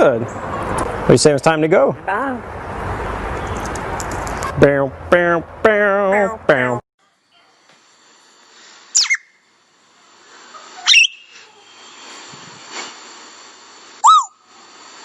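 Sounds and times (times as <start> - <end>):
faint steady hiss: 7.0 - 15.0
parrot whistling: 8.9 - 9.4, 10.8 - 11.4, 14.0 - 14.5.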